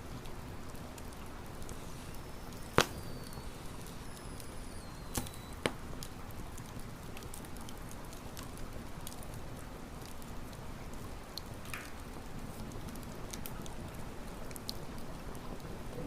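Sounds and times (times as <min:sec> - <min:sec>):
campfire crackling: 0:00.0 - 0:16.0
loud fire pops: 0:01.7 - 0:06.1.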